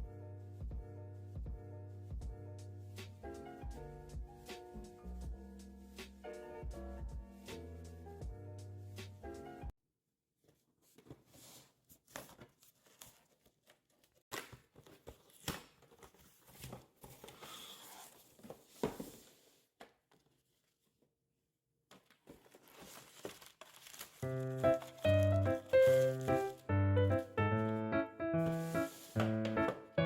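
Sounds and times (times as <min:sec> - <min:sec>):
packaging rustling and crinkling: 0:21.9 - 0:26.7, 0:28.4 - 0:29.6.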